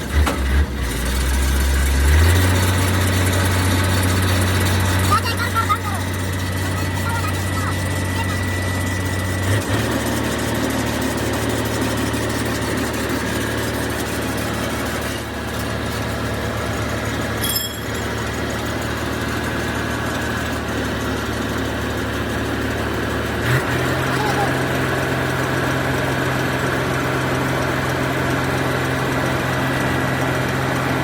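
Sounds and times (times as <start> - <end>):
motor humming: 3.0 - 21.1.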